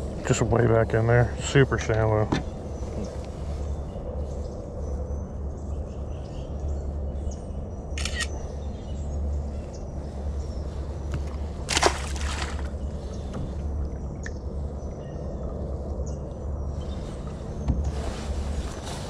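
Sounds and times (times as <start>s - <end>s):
wind on microphone: 10.0s - 19.0s.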